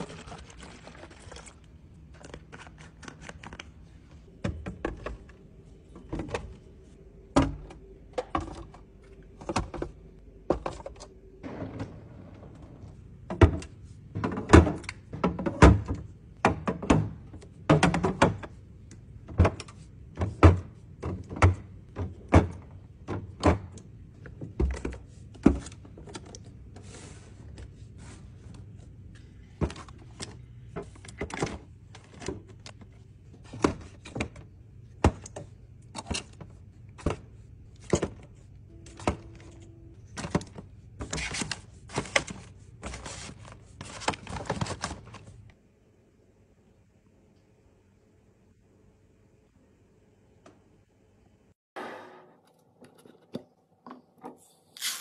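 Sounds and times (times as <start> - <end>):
kitchen items knocking and clicking: 13.3 - 18.5.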